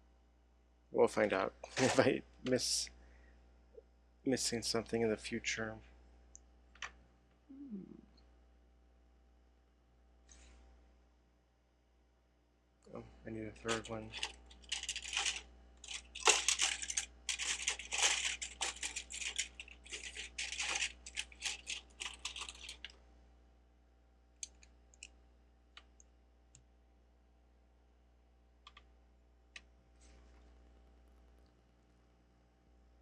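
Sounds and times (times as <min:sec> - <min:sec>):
plastic bricks clattering: 0:13.7 - 0:22.9.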